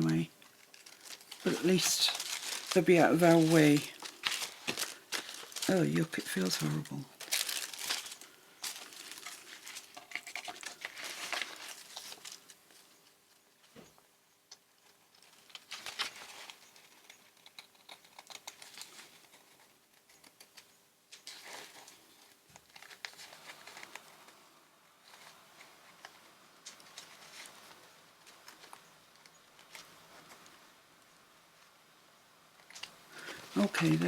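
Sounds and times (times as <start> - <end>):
paper rustling and crinkling: 0.0 - 13.7, 14.9 - 24.4, 25.0 - 30.5.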